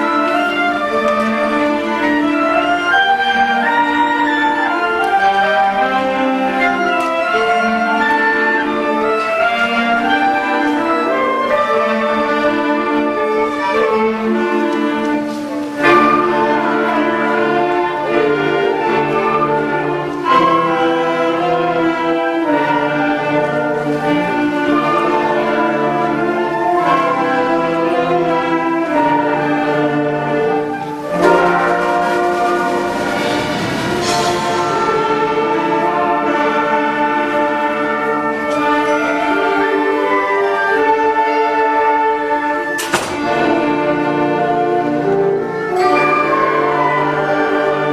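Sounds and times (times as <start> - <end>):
concert band playing: 0.0 - 47.9.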